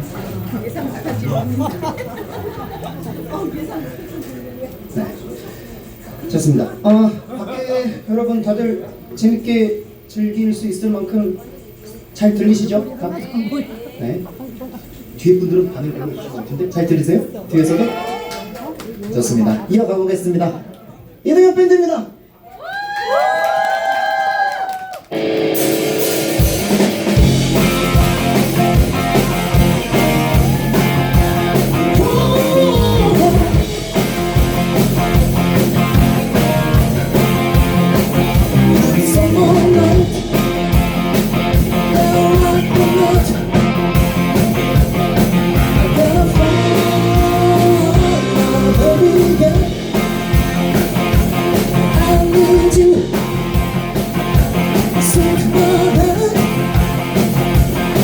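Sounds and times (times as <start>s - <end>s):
live rock band playing: 25.1s - 58.0s
man singing: 31.4s - 33.8s, 38.6s - 40.5s, 41.7s - 43.6s, 45.6s - 50.8s, 51.7s - 53.3s, 54.8s - 56.8s.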